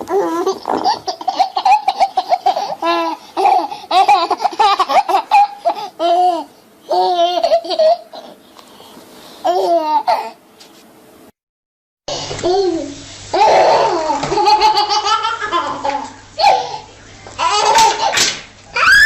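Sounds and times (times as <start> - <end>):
young child laughing: 13.4 - 18.2.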